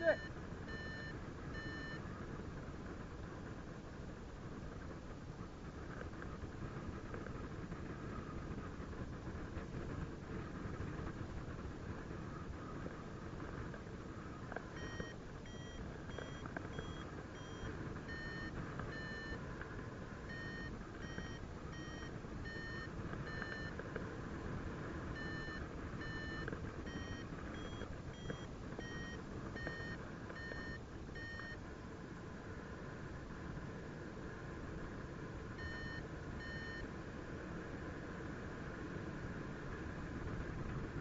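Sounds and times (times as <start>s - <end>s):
wind rumble on microphone: 0.2s - 41.0s
short high electronic beeps: 25.2s - 31.6s.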